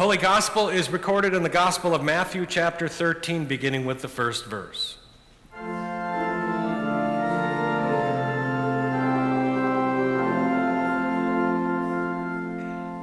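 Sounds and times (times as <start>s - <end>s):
organ playing slow chords: 5.5s - 13.0s.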